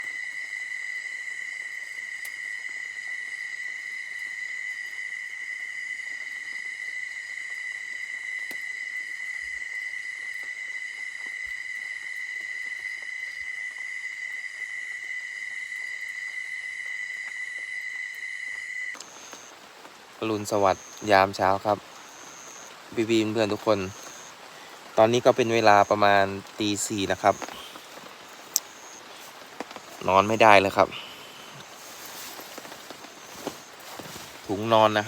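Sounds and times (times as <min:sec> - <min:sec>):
crickets chirping: 0:00.0 - 0:35.0
faint ticks: 0:15.7 - 0:20.0, 0:26.4 - 0:35.0.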